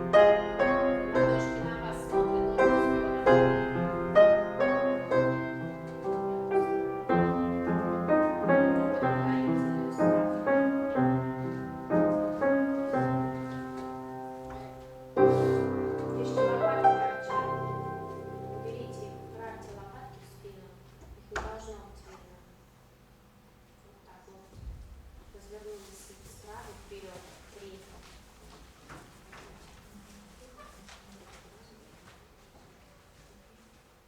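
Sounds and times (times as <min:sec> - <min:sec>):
slow piano chords: 0:00.0 - 0:21.9.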